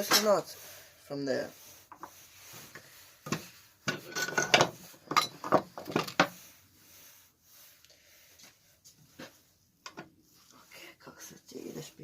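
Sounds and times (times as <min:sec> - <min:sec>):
metal tools clinking on workbench: 0:03.9 - 0:06.2.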